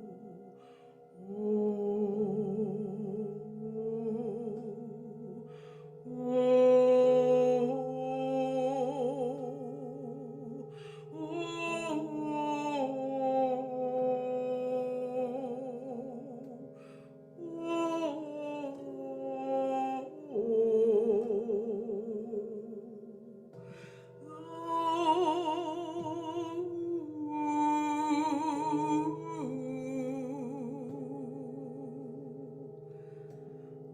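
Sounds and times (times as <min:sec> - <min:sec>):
woman singing wordless held notes: 0:00.0 - 0:22.9, 0:23.7 - 0:32.6.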